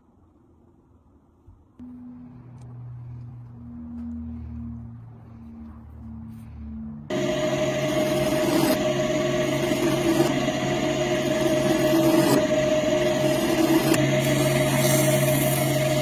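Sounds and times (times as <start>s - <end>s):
small electric motor whining: 7.1s - 16.0s.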